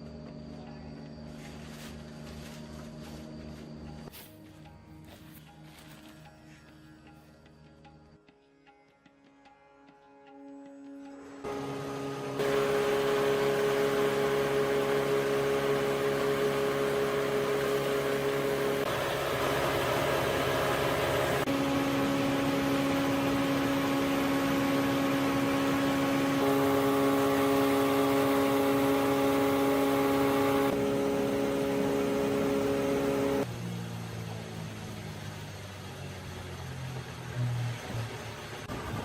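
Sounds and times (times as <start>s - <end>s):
milling machine motor hum: 11.2s - 33.5s.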